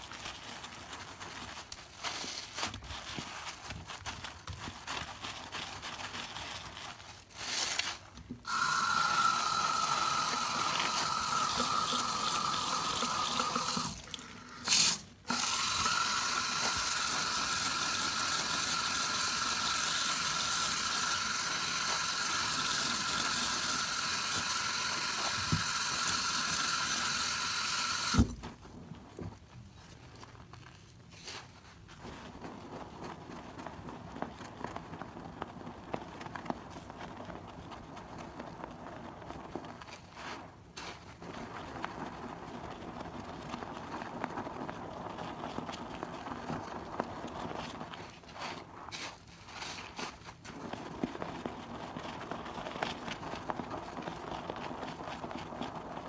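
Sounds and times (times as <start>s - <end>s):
tap water running into sink: 8.5s - 28.4s.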